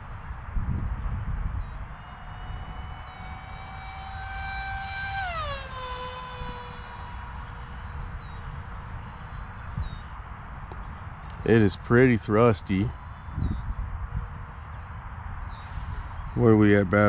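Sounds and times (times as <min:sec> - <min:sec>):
electric motor propeller whine: 0:00.6 - 0:11.4.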